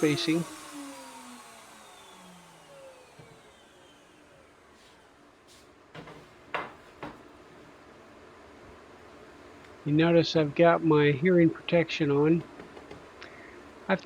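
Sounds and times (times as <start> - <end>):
router motor spinning down: 0.0 - 5.1.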